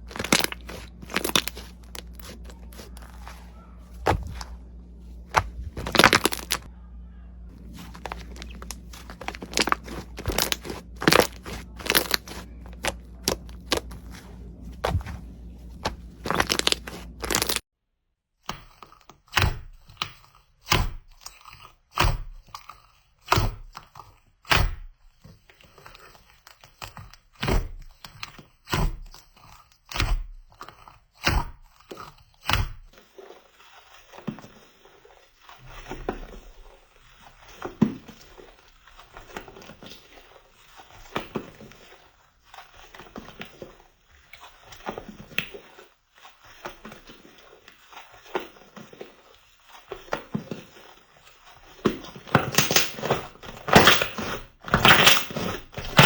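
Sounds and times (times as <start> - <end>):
crunchy slime cracking: 0.0 - 6.7, 7.5 - 17.6, 52.0 - 56.0
slime crackling and squishing: 0.0 - 6.7, 7.4 - 17.6, 31.2 - 56.0.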